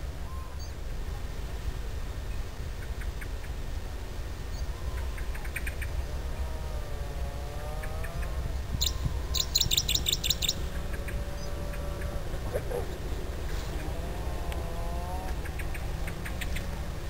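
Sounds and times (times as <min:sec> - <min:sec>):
steady low rumble: 0:00.0 - 0:17.0
birds chirping: 0:04.5 - 0:17.0.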